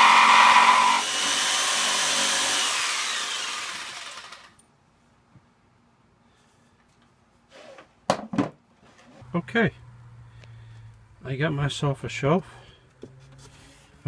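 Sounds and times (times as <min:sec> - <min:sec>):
power saw cutting wood: 0:00.0 - 0:04.6.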